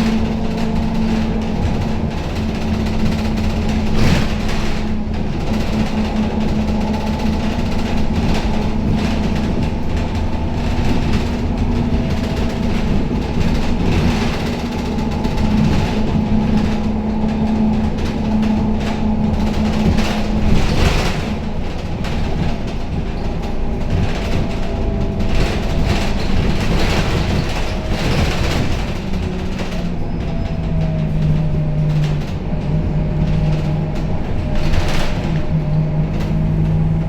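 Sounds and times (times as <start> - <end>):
bus body rattling: 0.0 - 37.0
bus engine droning: 0.0 - 37.0
road rumble: 0.0 - 37.0.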